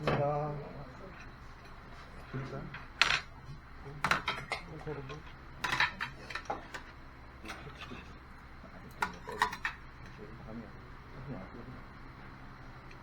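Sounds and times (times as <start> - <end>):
cutlery clinking against dishes: 4.0 - 8.2, 8.9 - 9.8.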